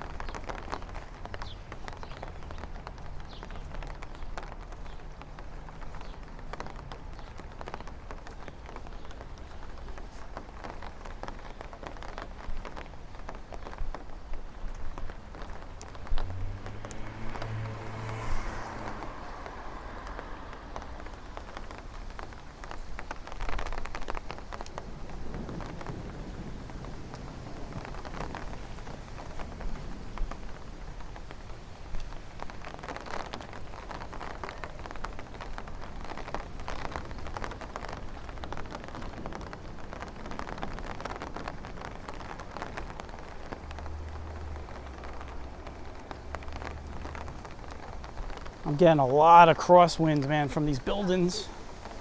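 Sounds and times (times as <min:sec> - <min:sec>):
rain falling on street: 0:00.0 - 0:52.0
vehicle passing: 0:16.0 - 0:21.8.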